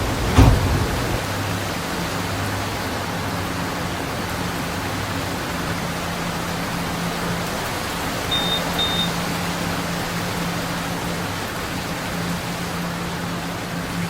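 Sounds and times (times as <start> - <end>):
subway station and train noise: 0.0 - 1.8, 7.2 - 10.5.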